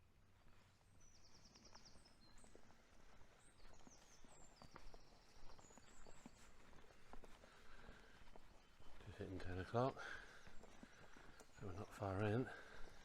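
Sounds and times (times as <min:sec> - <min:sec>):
footsteps on dry woodland path: 0:00.0 - 0:13.0
birds chirping and trilling: 0:03.3 - 0:13.0.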